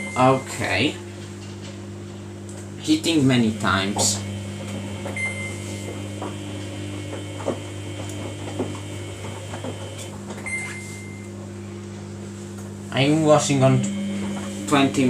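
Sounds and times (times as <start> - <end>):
washing machine beeps: 0.0 - 0.8, 4.3 - 11.3
low electrical hum: 0.0 - 15.0.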